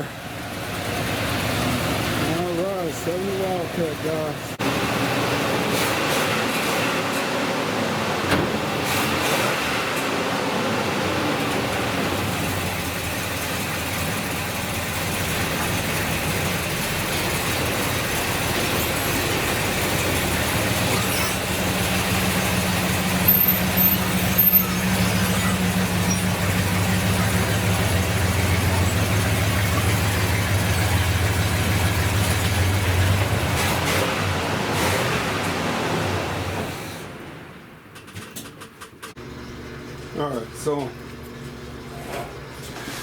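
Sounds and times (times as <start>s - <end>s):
car engine running low speed: 0.0s - 38.2s, 39.2s - 43.0s
high-pitched squeaks: 20.7s - 31.0s.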